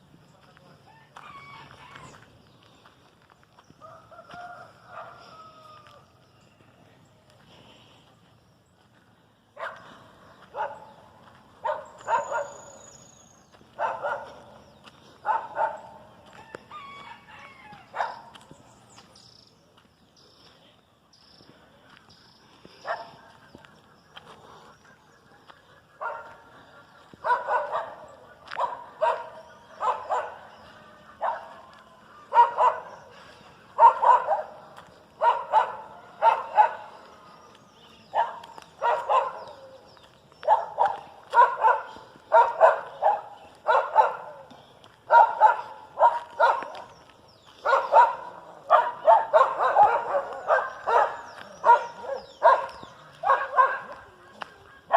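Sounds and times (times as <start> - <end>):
dog barking: 4.4 - 5.5, 9.6 - 11.0, 11.6 - 12.8, 13.8 - 14.6, 15.2 - 16.1, 17.9 - 18.4, 22.8 - 23.4, 26.0 - 26.5, 27.2 - 37.2, 38.1 - 46.9, 47.6 - 54.9.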